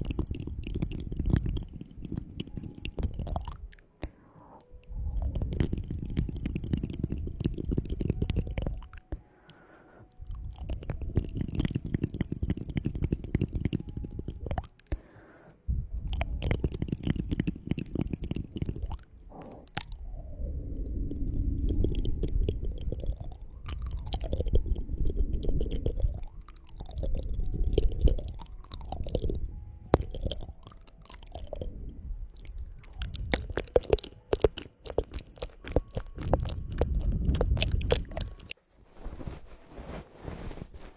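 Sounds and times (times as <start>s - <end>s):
low rumble from microphone contact: 0.0s - 3.8s, 4.6s - 9.0s, 10.2s - 14.7s, 15.6s - 40.9s
wet crackling and clicking: 0.0s - 15.0s, 16.0s - 38.6s.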